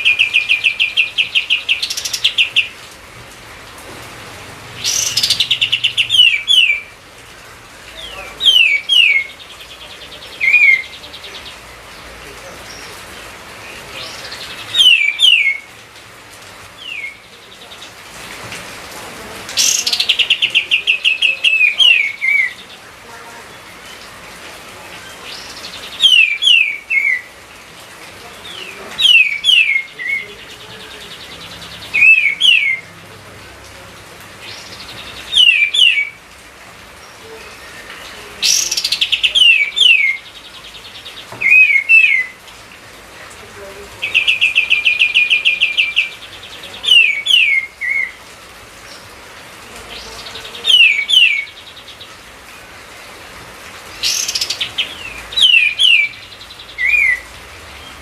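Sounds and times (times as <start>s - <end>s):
bulbul singing whistled phrases: 4.8s - 6.9s, 8.0s - 11.6s, 14.0s - 15.7s, 16.8s - 17.7s, 25.3s - 27.3s, 28.5s - 32.9s, 34.5s - 36.2s, 37.4s - 40.4s, 41.1s - 42.4s, 44.0s - 48.2s, 50.0s - 51.6s, 54.0s - 57.3s.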